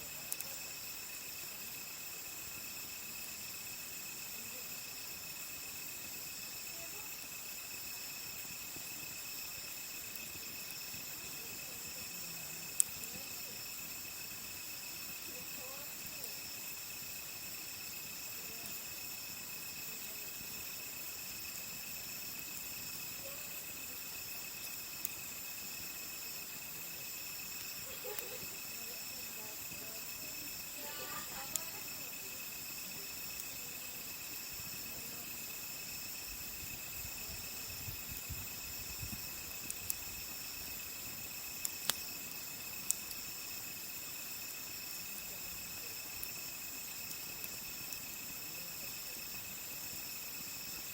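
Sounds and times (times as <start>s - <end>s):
campfire wood popping: 0.0s - 50.9s
crickets chirping: 0.0s - 50.9s.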